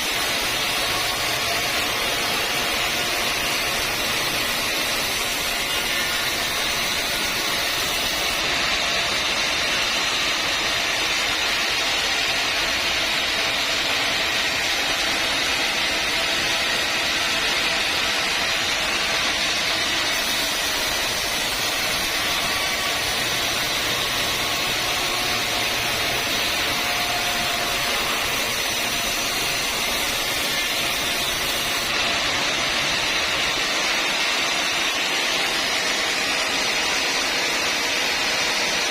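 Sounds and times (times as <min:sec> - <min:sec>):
sawmill saw cutting timber: 0:00.0 - 0:38.9.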